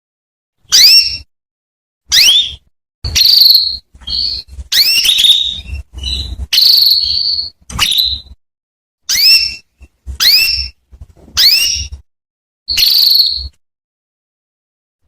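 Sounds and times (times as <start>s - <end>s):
canary whistled chirps: 0.7s - 1.3s, 2.1s - 8.4s, 9.1s - 10.8s, 11.4s - 12.0s, 12.7s - 13.6s.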